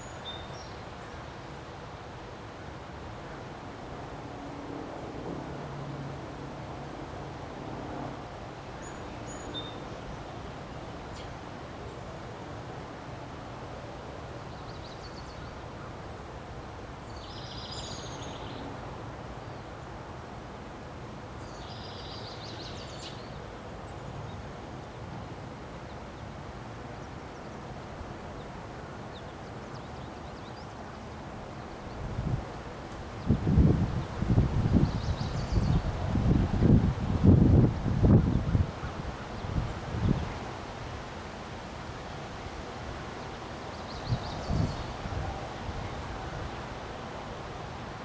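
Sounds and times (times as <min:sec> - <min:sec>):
wind blowing: 0:32.0 - 0:41.1.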